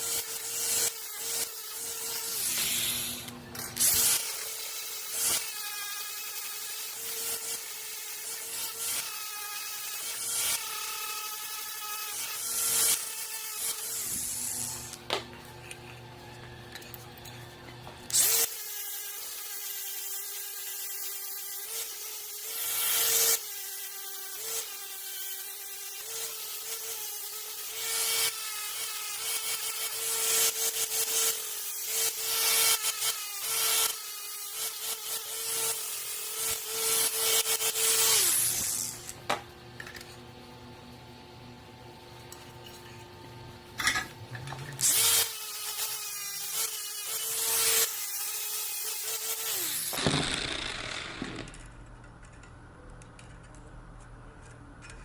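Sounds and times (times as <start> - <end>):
electric grinder grinding steel: 0.0 - 40.2, 43.8 - 51.6
grinder winding down: 34.5 - 39.2, 44.3 - 51.7.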